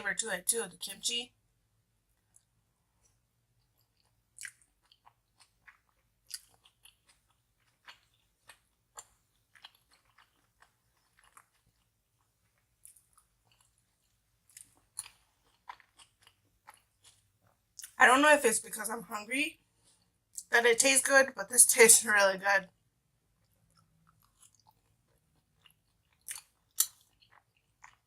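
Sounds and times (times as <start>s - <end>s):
person chewing food: 2.1s - 18.0s, 19.6s - 20.5s, 22.8s - 28.0s.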